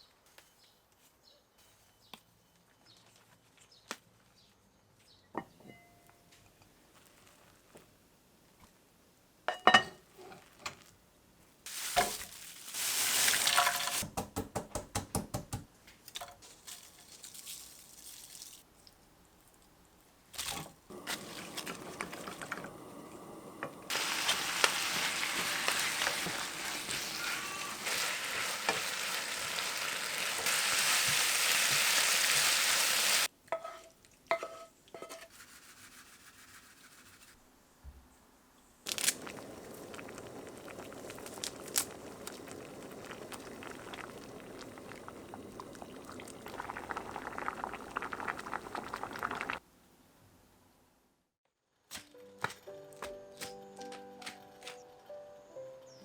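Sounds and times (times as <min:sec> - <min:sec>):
food sizzling in a pan: 0:11.7 - 0:14.0, 0:20.9 - 0:35.3, 0:39.1 - 0:49.6
stirring or scraping strokes: 0:20.4 - 0:22.7, 0:23.9 - 0:32.6, 0:33.6 - 0:37.4.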